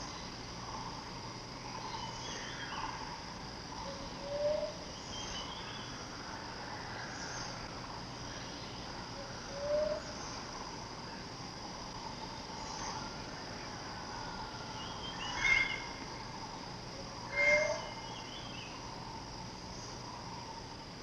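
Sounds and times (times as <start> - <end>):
insects droning: 0.0 - 21.0
bird call: 14.8 - 16.0, 17.3 - 18.7.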